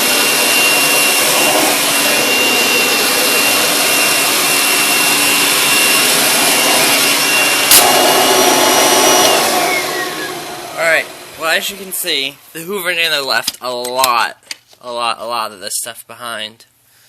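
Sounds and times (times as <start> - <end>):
vacuum cleaner on carpet: 0.0 - 12.0
thin steady whistle: 9.0 - 10.7.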